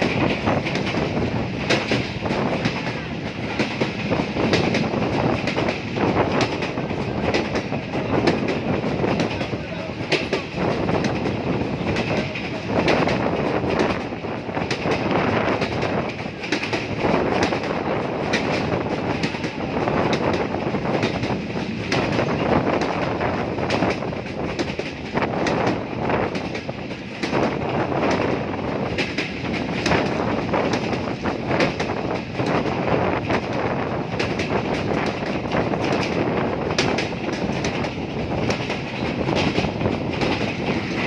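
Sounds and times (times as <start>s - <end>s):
train running on rails: 0.0s - 41.0s.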